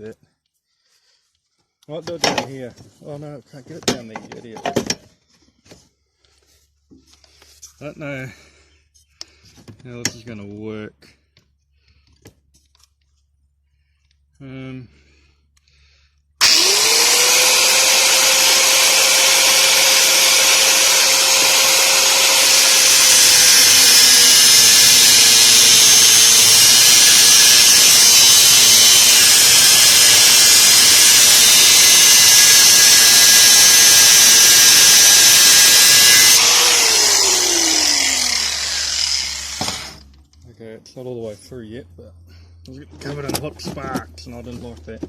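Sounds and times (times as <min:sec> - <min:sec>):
angle grinder cutting metal: 0:16.4 - 0:40.1.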